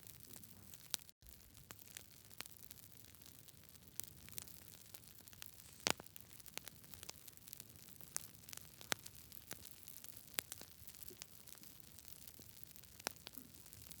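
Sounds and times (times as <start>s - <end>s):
wood fire crackling and popping: 0.0s - 14.0s
soft steady hiss: 1.2s - 14.0s.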